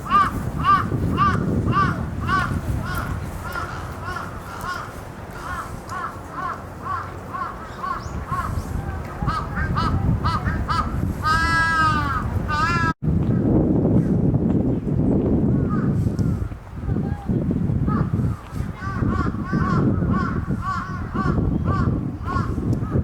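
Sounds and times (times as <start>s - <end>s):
crows cawing: 0.1s - 8.5s, 9.4s - 13.0s.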